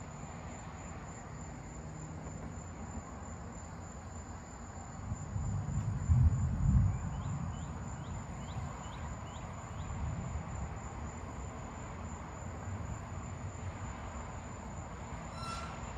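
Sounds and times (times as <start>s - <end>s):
steady low rumble: 5.1s - 8.7s
short rising chirps: 15.3s - 15.9s.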